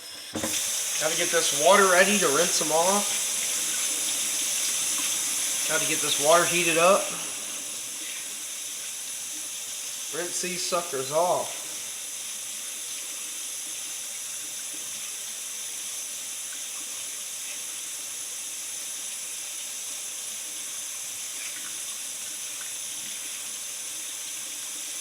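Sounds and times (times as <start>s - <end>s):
tap running into sink: 0.2s - 6.2s.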